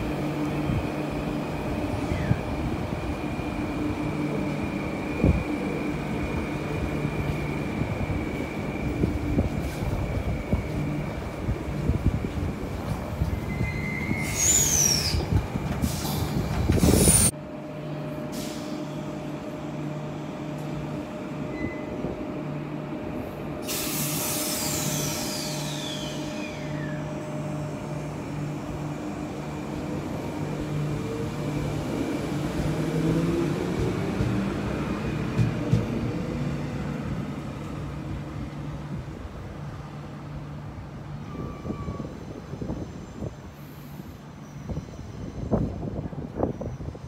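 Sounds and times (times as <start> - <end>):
stopped train humming: 0.0 - 47.0
train brake squeals: 13.2 - 17.3, 21.5 - 22.1, 23.6 - 27.4, 41.2 - 47.0
air hiss: 23.6 - 26.6
long falling whistle: 23.7 - 27.2.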